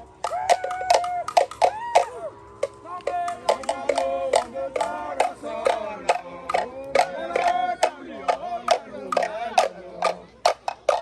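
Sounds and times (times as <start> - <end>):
sharp percussive hits: 0.0 - 11.0
group singing in parts: 3.0 - 11.0.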